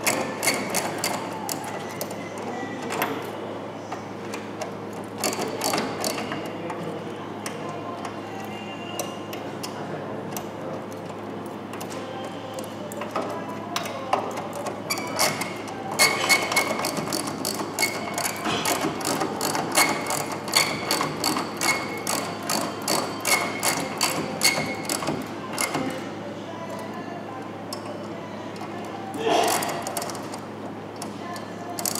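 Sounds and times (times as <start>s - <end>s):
rapid mechanical clicking: 4.6s - 6.5s, 12.6s - 26.0s, 29.4s - 30.4s, 31.0s - 31.9s.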